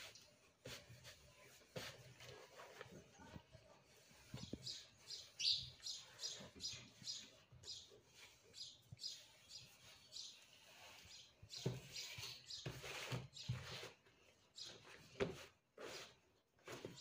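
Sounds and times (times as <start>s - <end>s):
small bird chirping: 4.2s - 15.0s.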